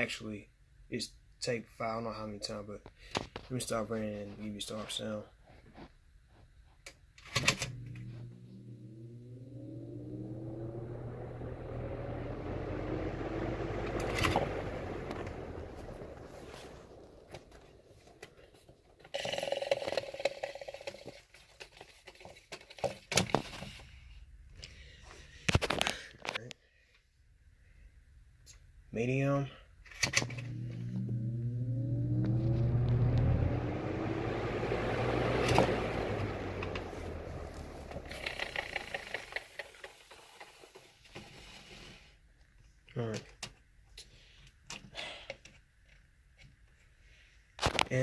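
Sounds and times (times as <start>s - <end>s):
box fan blades winding down: 7.4s - 20.0s, 30.0s - 40.8s
rapid ticking rattle: 37.6s - 40.0s.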